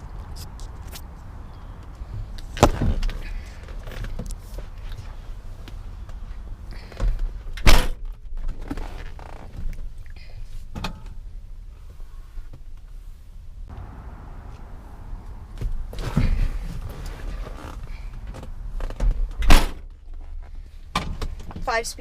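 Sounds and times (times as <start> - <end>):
low rumble: 13.6 - 18.8.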